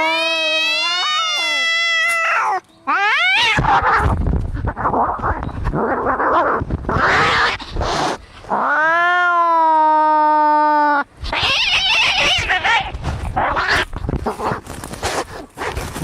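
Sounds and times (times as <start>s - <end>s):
cat yowling: 0.0s - 4.1s, 8.6s - 13.9s
cats screeching: 0.0s - 10.2s, 10.9s - 14.4s.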